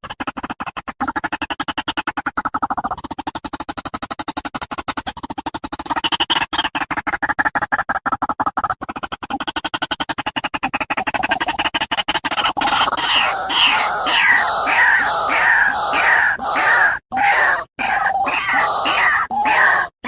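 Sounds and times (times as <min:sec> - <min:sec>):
rapid pulsing: 0:08.8 - 0:20.0
bird harsh falling calls: 0:12.9 - 0:20.0.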